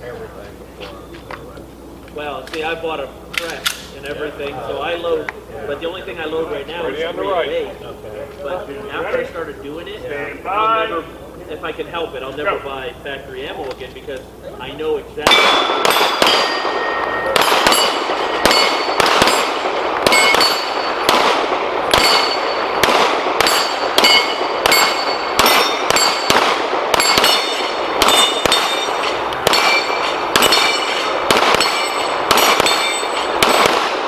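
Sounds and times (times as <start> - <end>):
steel targets clanging: 15.2 - 21.2, 21.9 - 33.8
rapid handgun fire: 15.2 - 34.0.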